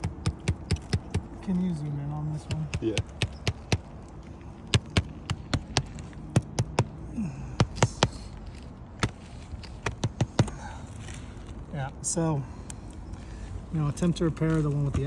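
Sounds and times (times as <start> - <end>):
sharp taps or clicks: 0.0 - 1.4, 2.4 - 3.9, 4.7 - 7.0, 9.0 - 10.6.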